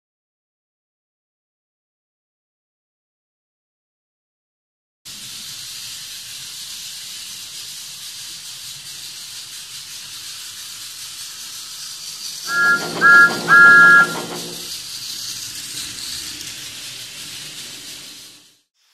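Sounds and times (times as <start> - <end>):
steam hissing: 5.1 - 18.9
two-note steam whistle: 12.5 - 14.8.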